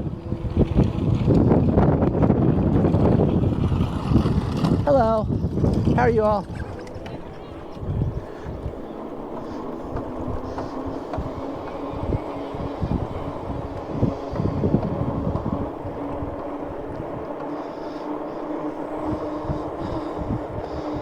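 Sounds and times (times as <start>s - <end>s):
electric bike motor and tyre hum: 0.0s - 21.0s
wind buffeting microphone: 0.0s - 21.0s.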